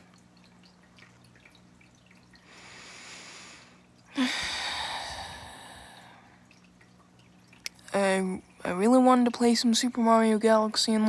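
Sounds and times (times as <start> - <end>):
faint steady hum: 0.0 - 11.0
person breathing in: 2.5 - 6.4
long airy sigh: 4.2 - 6.3.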